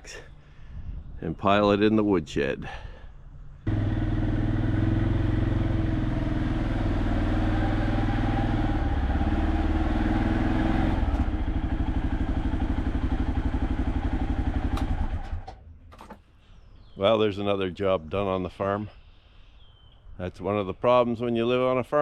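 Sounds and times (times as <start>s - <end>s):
atv engine running: 3.6s - 15.5s.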